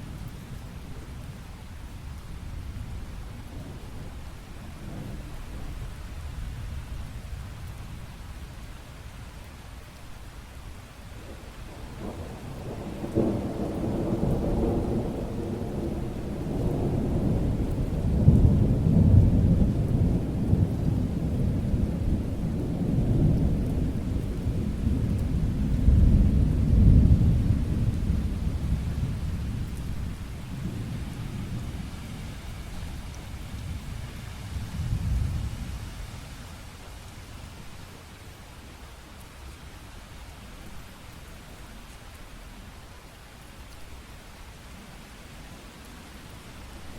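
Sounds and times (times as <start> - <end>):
steady rain: 0.0 - 46.9
rolling thunder: 11.9 - 35.8.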